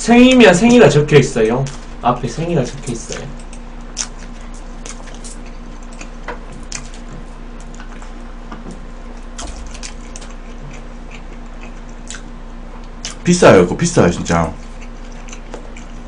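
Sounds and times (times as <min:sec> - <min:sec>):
chewing a burger: 0:02.6 - 0:13.3, 0:14.2 - 0:16.0.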